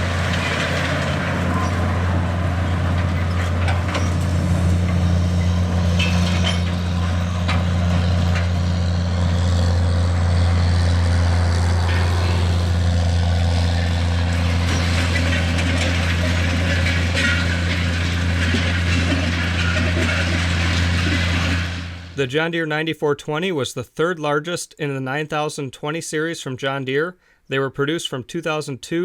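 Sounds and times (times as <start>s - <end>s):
tractor diesel engine droning: 0.0s - 22.3s.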